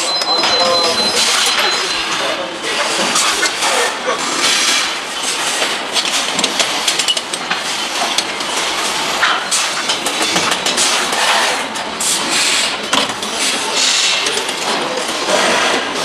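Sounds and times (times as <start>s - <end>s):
clicks and clanks of tools: 4.4s - 11.4s.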